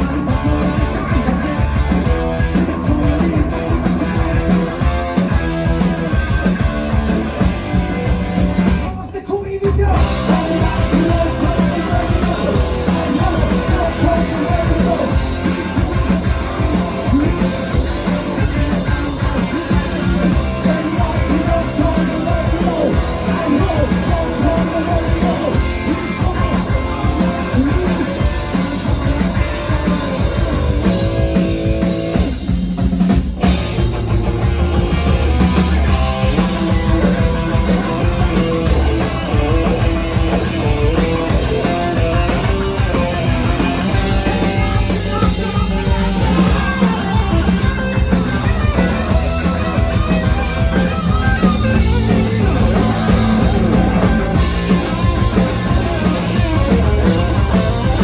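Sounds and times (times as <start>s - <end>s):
drum kit: 0.0s - 58.0s
electric guitar: 0.0s - 58.0s
person singing: 8.9s - 30.5s.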